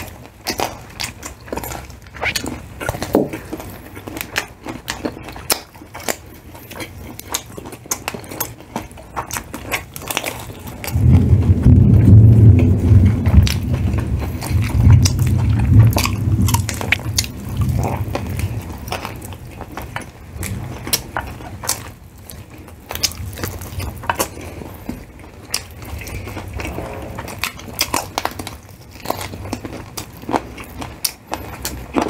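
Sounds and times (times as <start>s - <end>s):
chewing fried chicken: 0.0s - 32.0s
low rumble: 10.8s - 19.7s.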